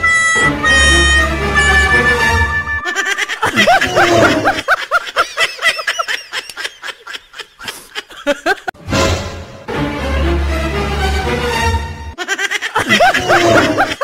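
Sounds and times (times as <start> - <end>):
loud laughter in short bursts: 2.9 - 5.8, 12.6 - 14.0.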